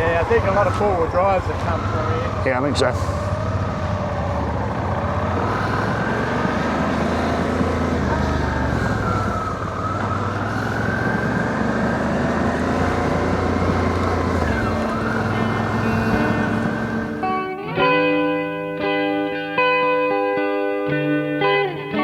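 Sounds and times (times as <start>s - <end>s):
motorcycle engine running: 0.0s - 17.4s.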